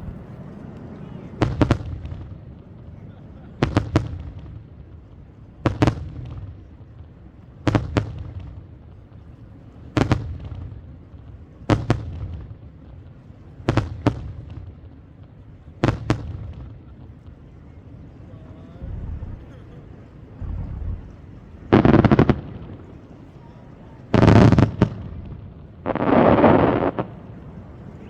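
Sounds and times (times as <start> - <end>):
fireworks bursting: 11.7 - 18.1, 19.1 - 28.0
low rumble: 20.4 - 21.7.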